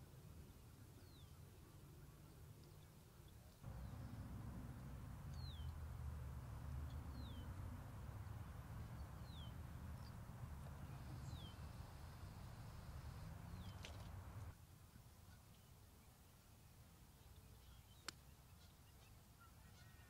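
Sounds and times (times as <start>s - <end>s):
low outdoor rumble: 3.6s - 14.6s.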